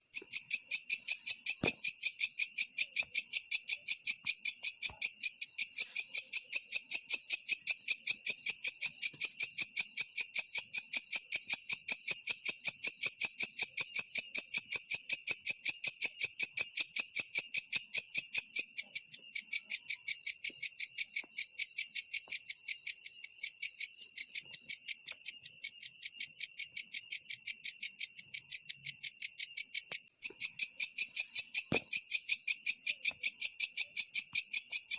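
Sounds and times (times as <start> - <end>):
katydid jingling pulsed song: 19.3 - 34.9.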